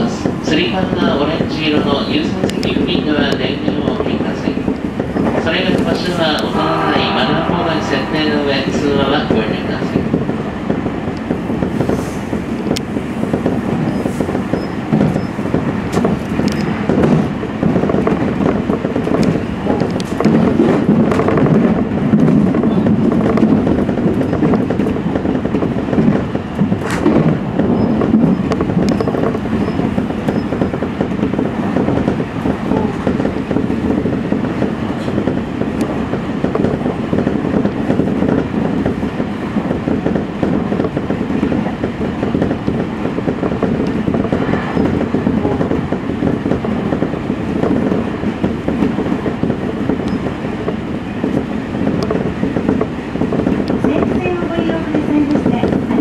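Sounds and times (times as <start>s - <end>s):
steel wheels rolling on rail: 0.0s - 56.0s
train clacking over points: 0.0s - 56.0s.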